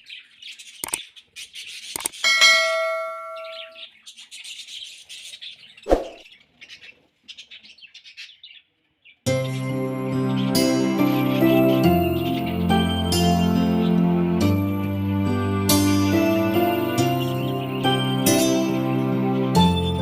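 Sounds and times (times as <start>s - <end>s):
budgerigars chattering and chirping: 0.0s - 2.3s, 3.3s - 14.6s
loud bell-like ring: 2.3s - 3.8s.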